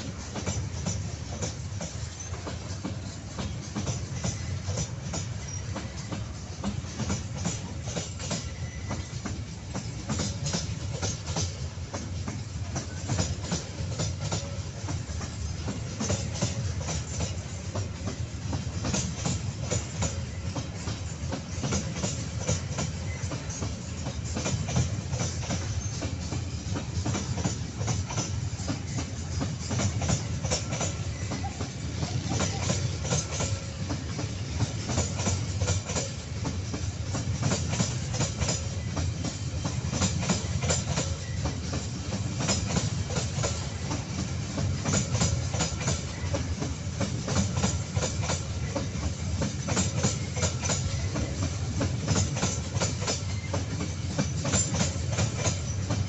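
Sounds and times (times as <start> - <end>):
train wagons rumbling past: 0.0 - 56.0
wheels clicking over rail joints: 0.0 - 56.0.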